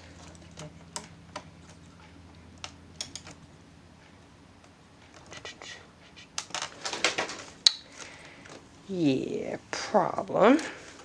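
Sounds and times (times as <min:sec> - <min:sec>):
plastic laptop parts clicking: 0:02.6 - 0:03.4, 0:06.4 - 0:08.6.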